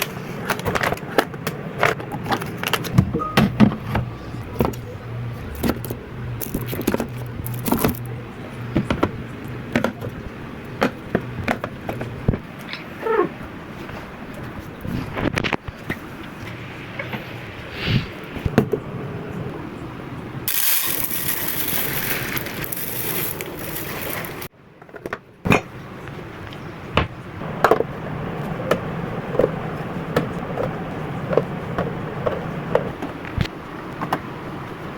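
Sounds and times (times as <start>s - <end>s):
clicks and knocks of items handled: 0.0s - 4.9s, 5.5s - 8.1s
loud hissing noise: 16.4s - 18.5s, 20.4s - 24.5s.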